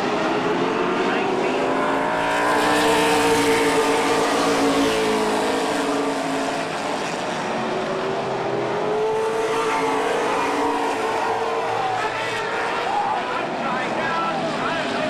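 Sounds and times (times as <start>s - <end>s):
racing car engines passing: 0.0s - 15.0s.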